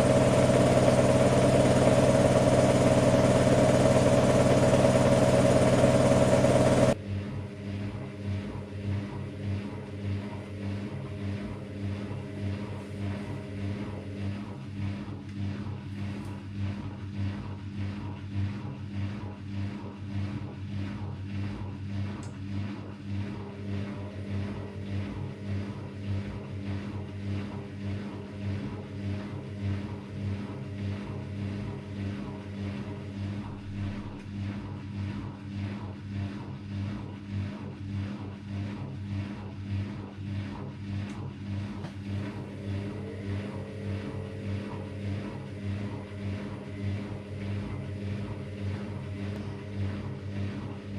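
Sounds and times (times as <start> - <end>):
drum turning with fast pulsing: 0.0 - 7.0, 23.3 - 34.9, 41.4 - 50.9
loud sound cutting off: 0.0 - 7.0, 42.0 - 50.9
washer-dryer motor hum: 0.0 - 50.9.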